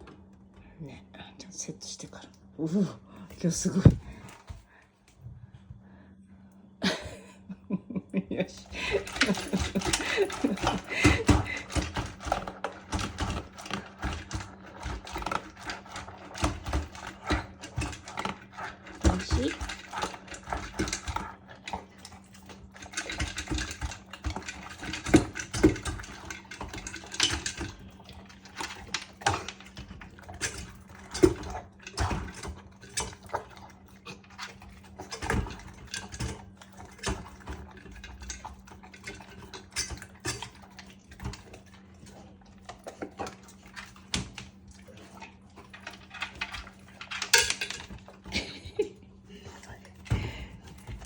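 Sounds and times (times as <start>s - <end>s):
dog crunching food: 8.7s - 48.7s.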